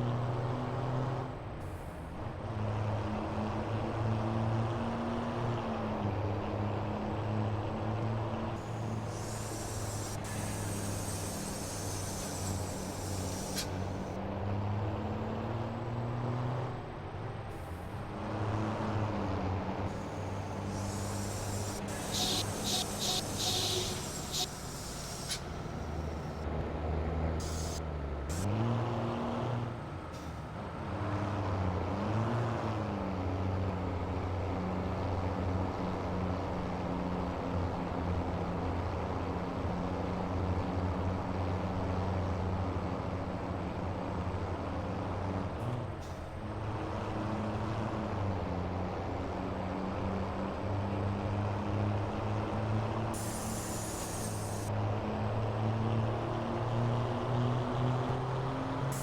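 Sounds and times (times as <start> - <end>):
truck engine running: 8.4 - 16.0, 17.2 - 28.6, 41.8 - 59.0
short hisses: 8.6 - 14.2, 19.9 - 26.4, 27.4 - 28.5, 53.2 - 54.7.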